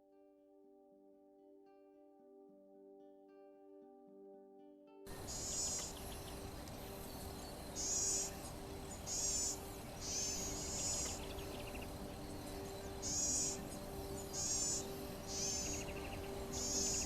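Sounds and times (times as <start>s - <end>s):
background hiss: 5.1s - 17.0s
insects trilling: 5.1s - 17.0s.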